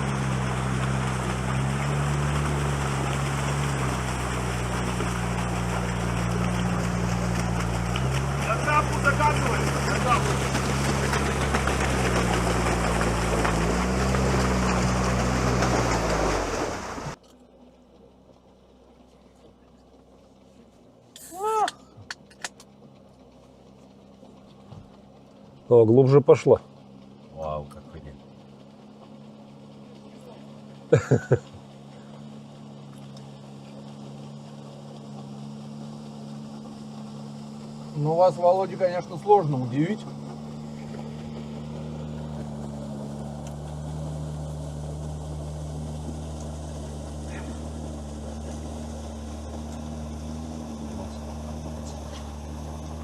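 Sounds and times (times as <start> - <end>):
water hissing: 0.0 - 17.2
vehicle engine running: 0.0 - 53.0.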